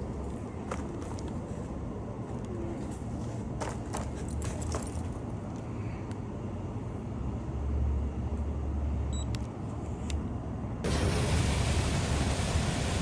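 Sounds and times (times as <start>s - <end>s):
steady hiss: 10.9s - 13.0s.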